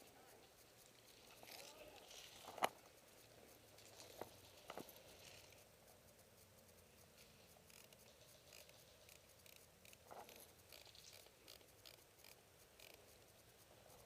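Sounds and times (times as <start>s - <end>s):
faint rustling: 0.0s - 14.0s.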